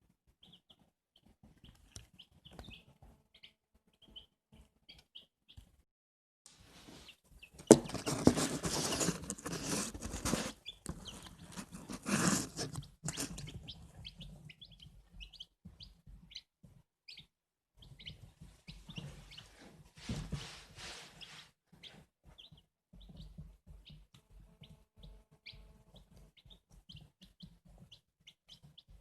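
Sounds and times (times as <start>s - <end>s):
chicks peeping: 0.4s - 5.8s, 6.8s - 29.0s
sharp knock: 7.6s - 8.5s
loud rustling: 7.6s - 13.5s.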